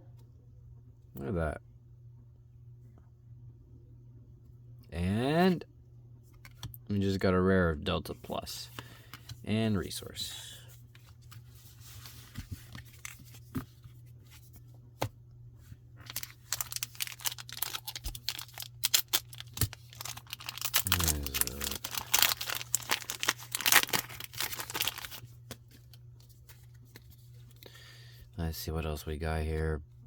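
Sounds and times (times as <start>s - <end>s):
plastic wrapper tearing and crackling: 16.0s - 25.9s.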